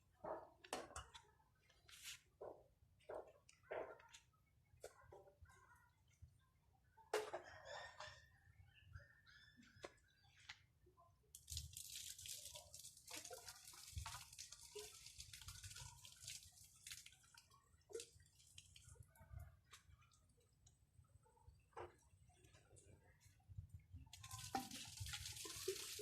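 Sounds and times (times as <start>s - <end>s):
small clicks and drips: 11.3s - 26.0s
water trickling and spattering: 11.3s - 26.0s.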